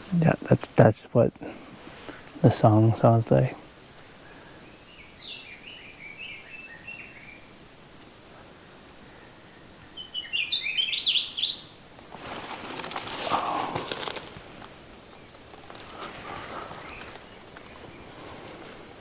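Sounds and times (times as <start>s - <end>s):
rustling noise: 12.0s - 19.0s.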